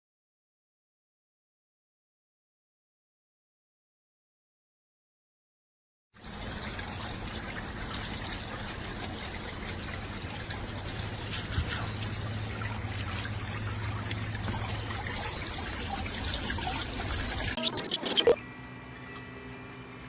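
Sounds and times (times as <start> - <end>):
water trickling: 6.2 - 18.4.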